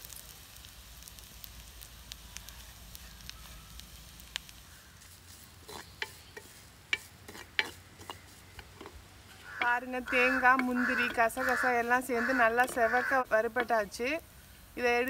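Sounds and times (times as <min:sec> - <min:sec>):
food sizzling in oil: 0:00.0 - 0:15.0
spoon scraping clicks: 0:05.7 - 0:09.8.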